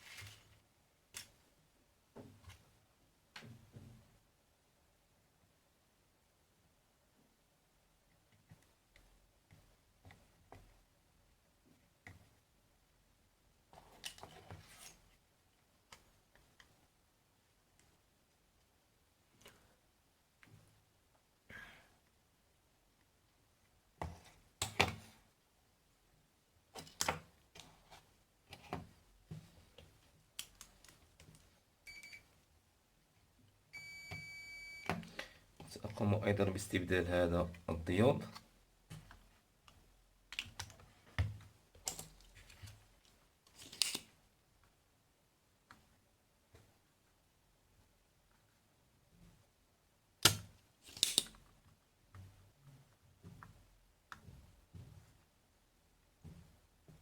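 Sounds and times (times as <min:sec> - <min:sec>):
electronic beep: 0:33.8 - 0:34.9.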